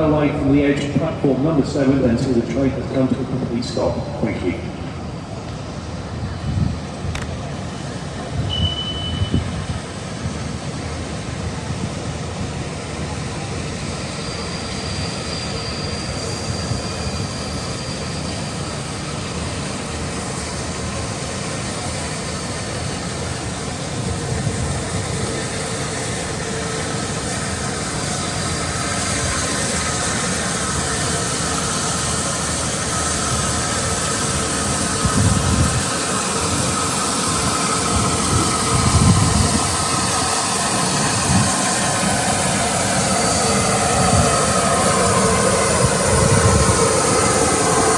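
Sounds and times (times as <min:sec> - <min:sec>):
train running on rails: 0:00.0 - 0:47.9
heavy low rumbles: 0:33.0 - 0:47.9.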